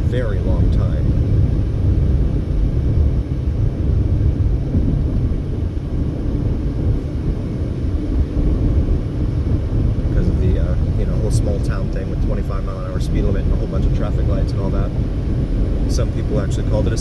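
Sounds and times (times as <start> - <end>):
car driving on highway: 0.0 - 17.0.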